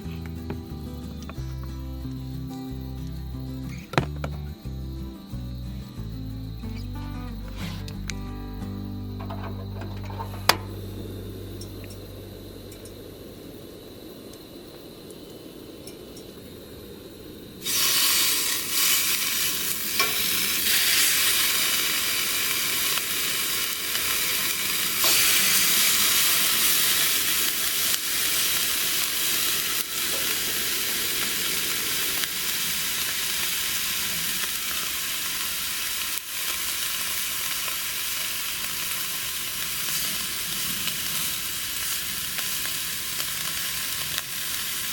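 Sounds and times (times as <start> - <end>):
food sizzling in a hot pan: 17.6 - 44.9.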